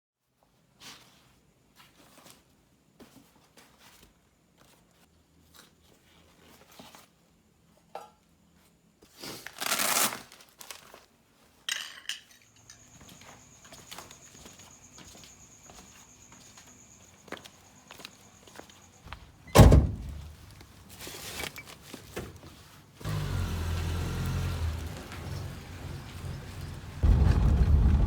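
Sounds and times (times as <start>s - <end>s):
packaging rustling: 9.4s - 11.0s
pots cups and utensils clinking: 11.7s - 12.9s.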